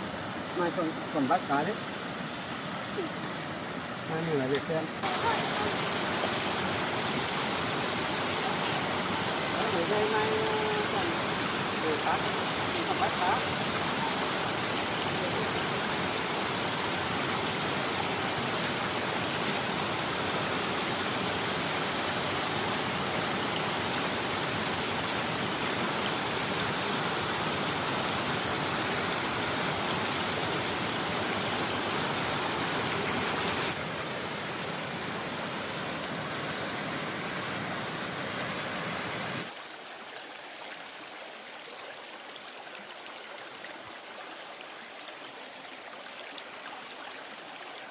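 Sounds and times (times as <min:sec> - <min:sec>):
stream water rushing: 0:00.0 - 0:47.9.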